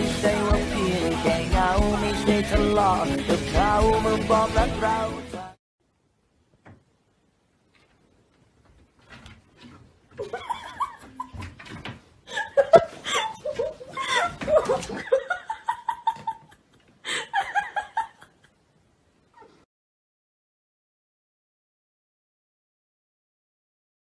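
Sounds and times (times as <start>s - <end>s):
person laughing hard: 10.2s - 11.5s, 12.3s - 18.5s.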